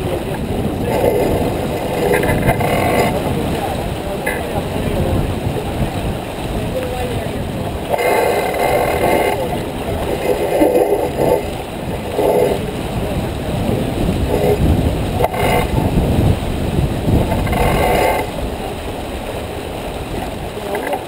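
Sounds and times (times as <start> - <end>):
water rushing along boat hull: 0.0 - 21.0
wind rumbling on microphone: 0.0 - 21.0.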